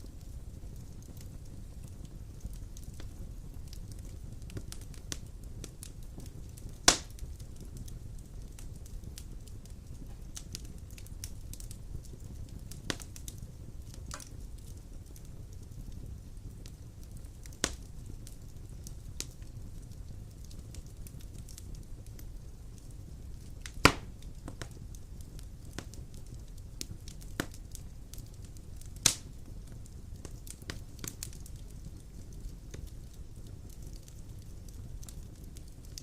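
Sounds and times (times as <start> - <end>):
fire crackling: 0.0 - 36.0
fire flames rumbling: 0.0 - 36.0
loud wood pops: 23.8 - 24.6.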